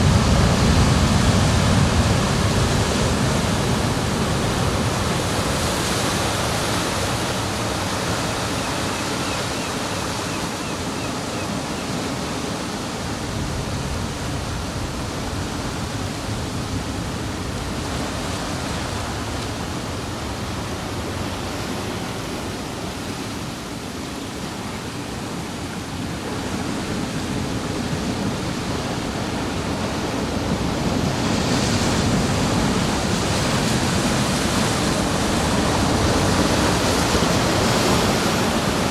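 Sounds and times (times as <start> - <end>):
ocean surf rushing: 0.0 - 38.9.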